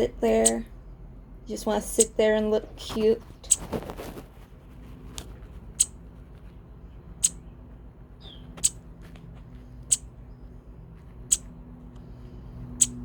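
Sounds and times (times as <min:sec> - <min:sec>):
songbird chip calls: 0:00.4 - 0:00.7, 0:07.2 - 0:07.5.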